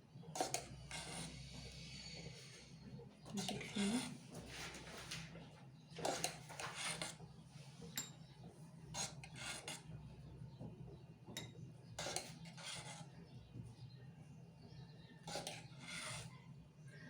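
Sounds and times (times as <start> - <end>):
metal spoon scraping a bowl: 0.3 - 4.8, 5.9 - 10.0, 11.4 - 13.4, 15.2 - 16.6.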